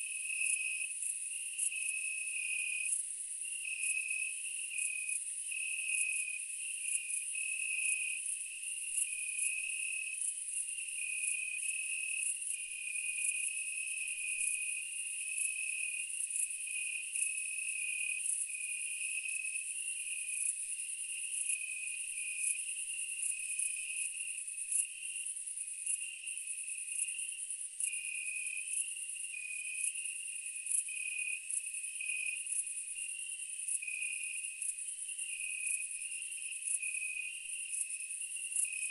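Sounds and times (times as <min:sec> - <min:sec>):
insects chirping: 0:30.8 - 0:38.9.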